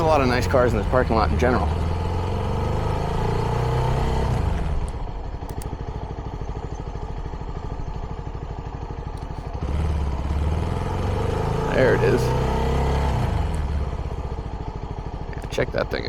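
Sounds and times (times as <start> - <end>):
motorcycle engine puttering: 3.8 - 12.3, 13.2 - 16.0.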